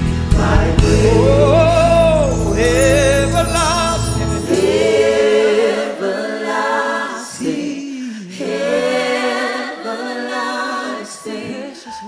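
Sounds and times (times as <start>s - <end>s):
choir singing slow praise chorus: 0.0s - 12.0s.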